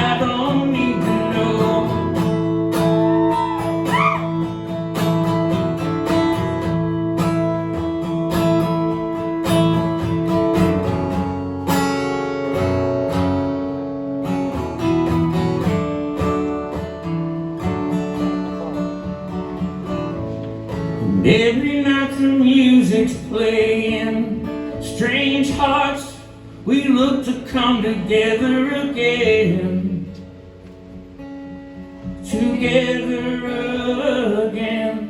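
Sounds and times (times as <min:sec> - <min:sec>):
strummed acoustic guitar: 0:00.0 - 0:35.0.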